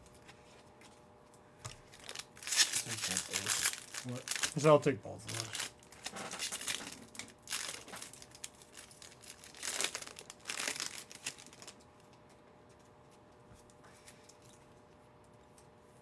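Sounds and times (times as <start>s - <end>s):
foil wrappers crinkling and tearing: 1.7s - 11.8s.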